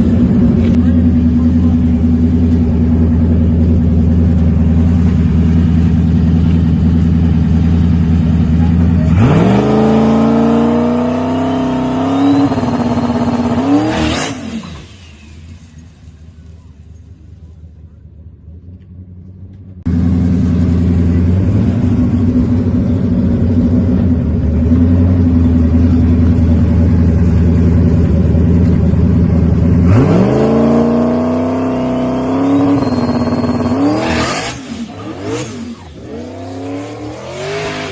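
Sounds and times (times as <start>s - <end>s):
steady engine drone: 0.0s - 37.9s
race car accelerating hard: 9.0s - 15.0s, 29.8s - 37.9s.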